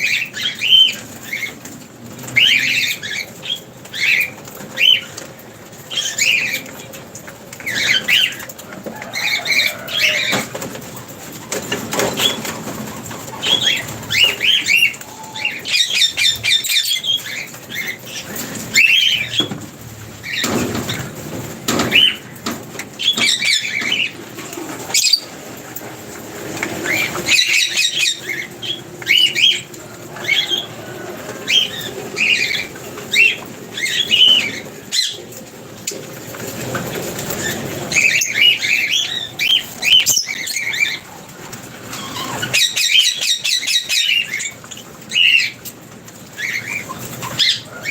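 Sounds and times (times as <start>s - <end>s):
wings fluttering: 0.0s - 47.9s
lovebirds chirping: 11.5s - 19.6s, 21.7s - 25.4s, 26.7s - 36.5s, 37.2s - 45.7s.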